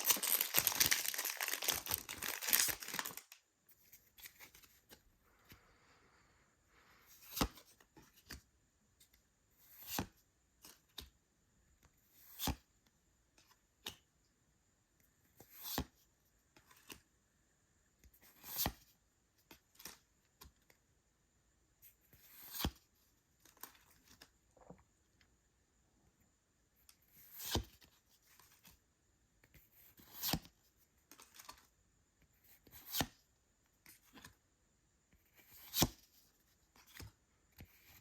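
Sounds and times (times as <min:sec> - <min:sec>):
crisp crack of card: 0:00.0 - 0:04.7.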